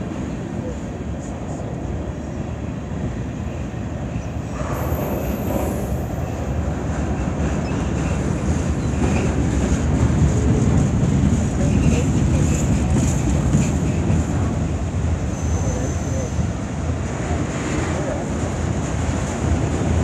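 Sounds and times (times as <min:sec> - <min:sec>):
train wheels rumbling on rails: 0:00.0 - 0:20.0
wheels clickety-clack: 0:06.8 - 0:14.8.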